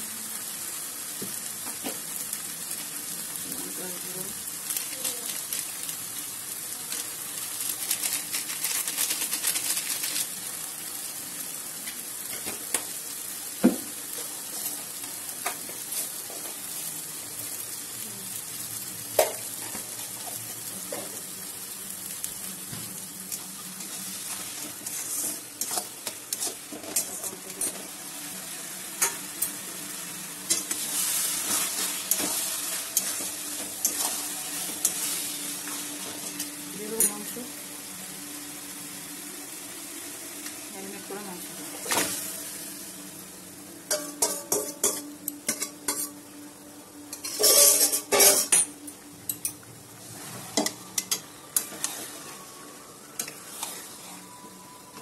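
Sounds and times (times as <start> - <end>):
onions sizzling in a pan: 0.0 - 55.0
spatula scraping pan: 24.6 - 27.4, 47.2 - 48.5.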